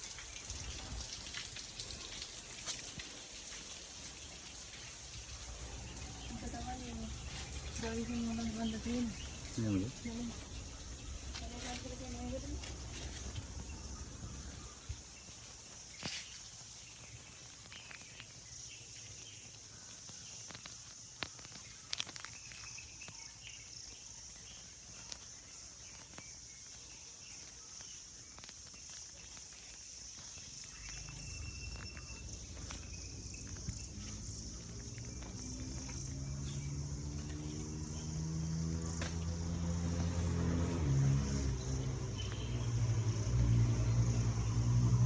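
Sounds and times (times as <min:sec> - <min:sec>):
insects chirring: 0:00.0 - 0:45.0
low rumble: 0:05.3 - 0:15.0, 0:30.8 - 0:37.3.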